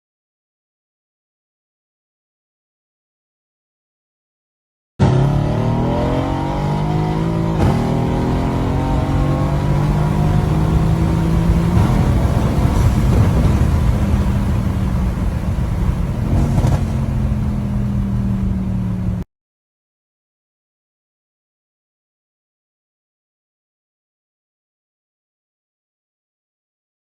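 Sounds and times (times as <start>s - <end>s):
car engine running: 5.0s - 19.2s.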